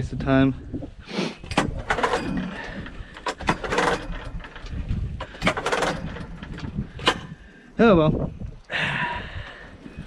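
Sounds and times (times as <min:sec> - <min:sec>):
small engine cranking: 0:01.5 - 0:07.4.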